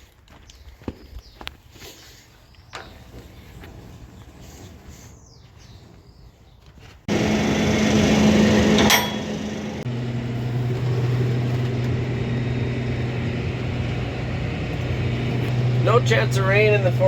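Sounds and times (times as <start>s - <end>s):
tractor engine running: 7.1s - 17.0s.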